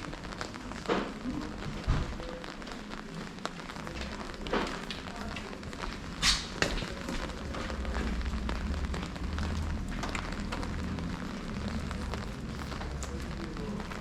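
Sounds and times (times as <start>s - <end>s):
rain on hard street: 0.0s - 14.0s
low rumble: 7.2s - 14.0s.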